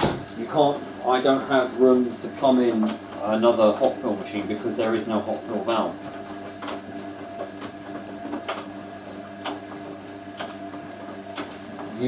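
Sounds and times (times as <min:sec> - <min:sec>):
washing machine drum knocks: 0:00.0 - 0:00.4
washing machine motor humming: 0:00.0 - 0:12.0.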